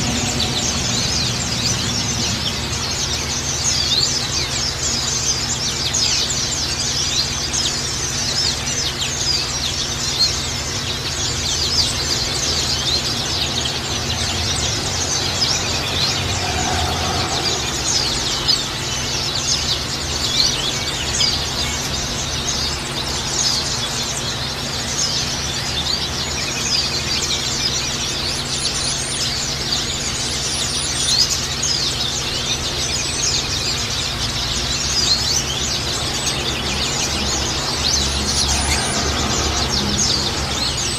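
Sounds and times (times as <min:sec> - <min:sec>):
birds chirping and twittering: 0:00.0 - 0:40.9.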